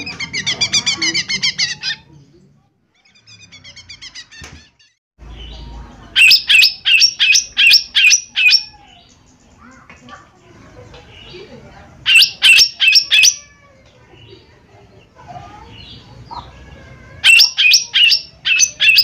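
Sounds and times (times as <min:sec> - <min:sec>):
bird singing: 0:05.2 - 0:19.0.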